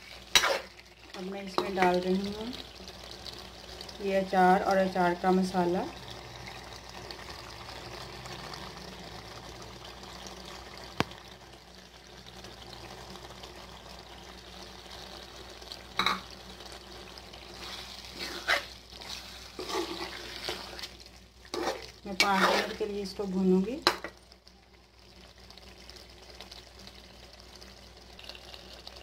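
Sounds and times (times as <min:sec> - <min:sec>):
spoon scraping a pan: 0:00.0 - 0:00.8, 0:17.6 - 0:23.0
curry sizzling in an oily pan: 0:00.0 - 0:29.0.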